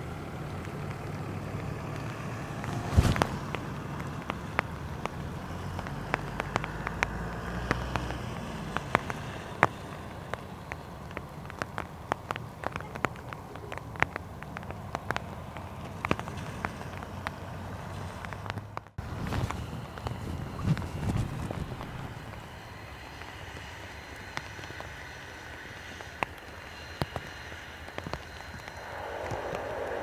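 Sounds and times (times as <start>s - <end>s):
raindrops ticking: 0.0s - 19.0s
steady rain: 0.0s - 30.0s
turboprop plane taxiing hum: 0.0s - 30.0s.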